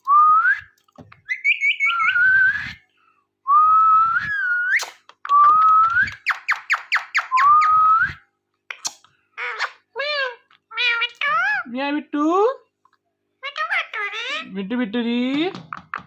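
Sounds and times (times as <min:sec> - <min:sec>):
parrot whistling: 0:01.2 - 0:02.8.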